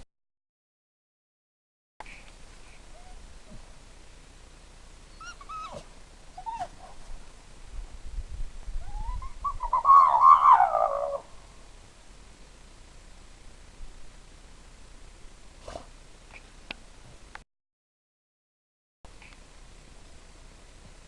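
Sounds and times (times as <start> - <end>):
dog whining: 2.9 - 3.2, 5.1 - 7.0, 8.8 - 11.2.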